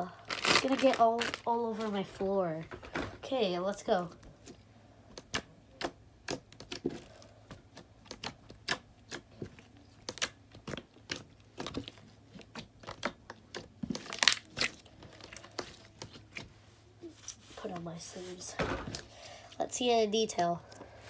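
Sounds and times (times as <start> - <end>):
slime squelching stretch: 4.4 - 18.4
slime squished by hand: 10.0 - 16.4.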